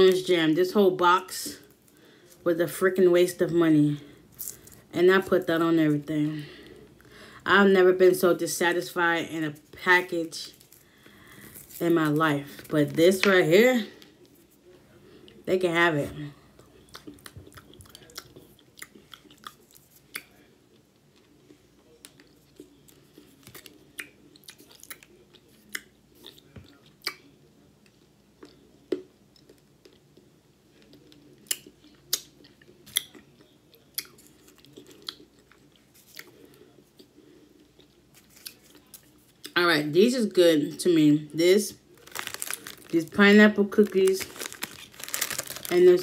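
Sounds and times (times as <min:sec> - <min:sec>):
person chewing food: 0:16.6 - 0:39.5, 0:41.9 - 0:43.0, 0:44.1 - 0:45.8.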